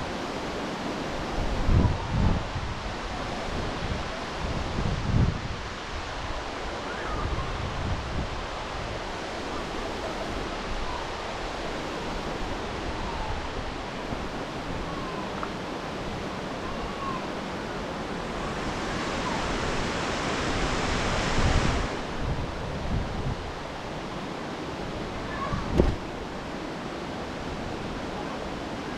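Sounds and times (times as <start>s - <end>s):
wind buffeting microphone: 1.1s - 15.2s, 18.0s - 24.1s, 24.7s - 26.3s
waterfall rushing: 5.4s - 28.9s.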